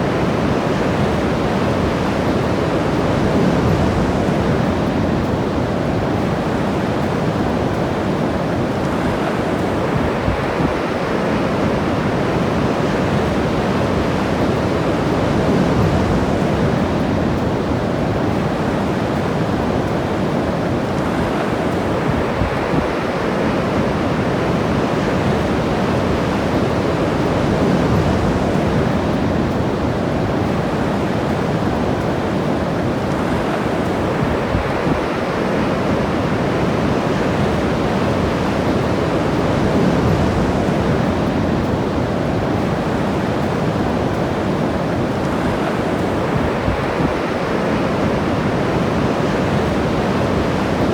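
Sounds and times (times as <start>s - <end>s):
ocean waves breaking: 0.0s - 50.9s.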